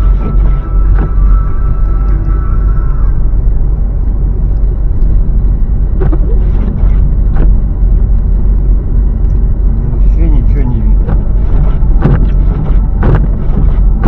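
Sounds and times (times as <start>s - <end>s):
engine and road noise in car: 0.0s - 14.0s.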